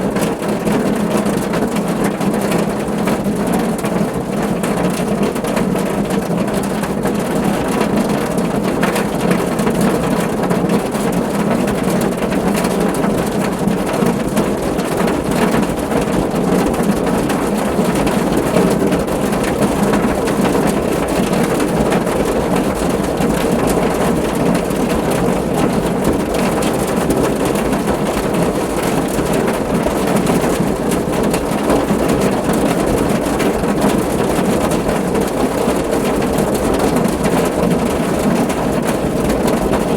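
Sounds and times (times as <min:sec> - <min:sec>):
rain drumming on a car: 0:00.0 - 0:39.9.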